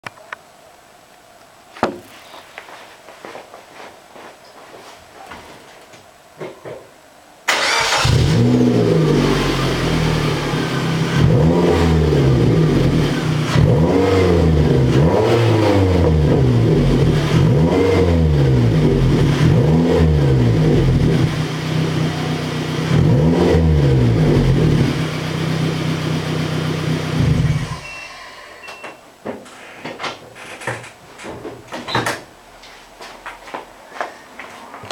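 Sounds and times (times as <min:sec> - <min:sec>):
car engine idling and revving: 0:07.8 - 0:27.9.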